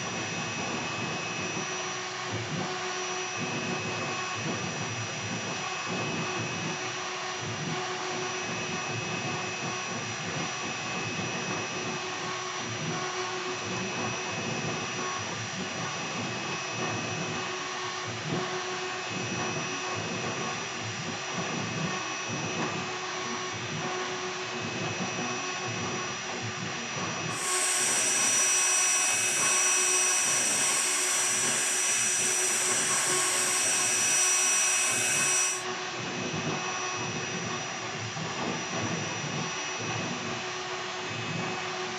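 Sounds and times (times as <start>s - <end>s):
router spindle whining: 27.2s - 35.8s
bit grinding into wood: 27.3s - 35.6s
loud rushing hiss: 27.4s - 35.6s.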